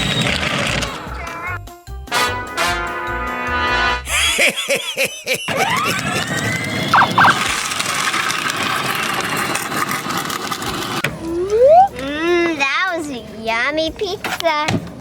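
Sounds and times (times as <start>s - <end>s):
vehicle whine: 6.3s - 9.9s
short beeps: 7.0s - 7.4s.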